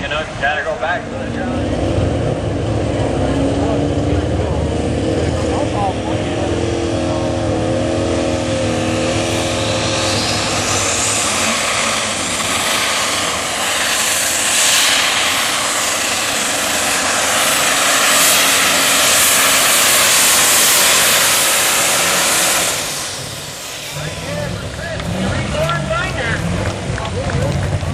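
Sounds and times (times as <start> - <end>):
turbo whine: 0.0 - 26.8
diesel engine at full power: 0.0 - 27.9.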